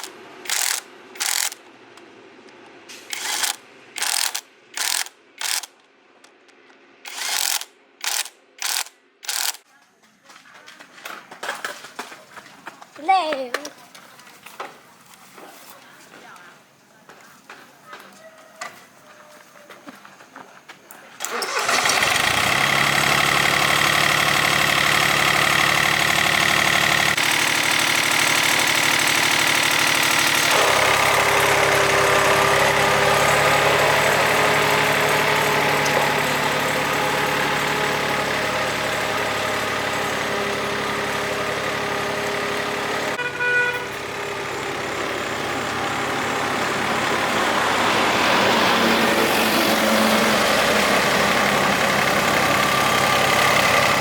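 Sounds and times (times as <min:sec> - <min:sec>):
farm machine engine running: 0:00.0 - 0:01.9, 0:02.9 - 0:05.7, 0:07.0 - 0:09.6, 0:21.2 - 0:54.0.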